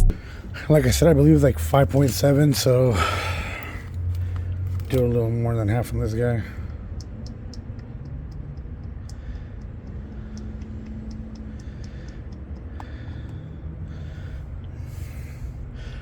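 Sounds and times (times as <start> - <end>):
steady low rumble: 0.0 - 16.0
faint irregular ticks: 3.3 - 16.0.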